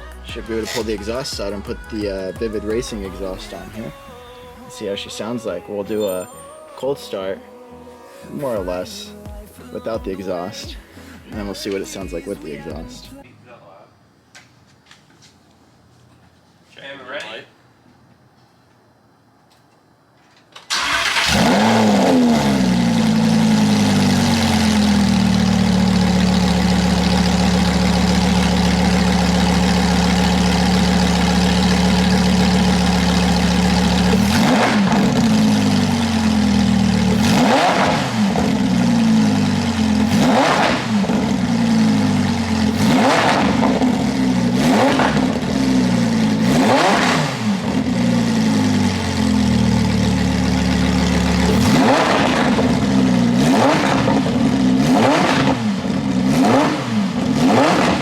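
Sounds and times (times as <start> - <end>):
sports car engine revving: 20.8 - 58.0.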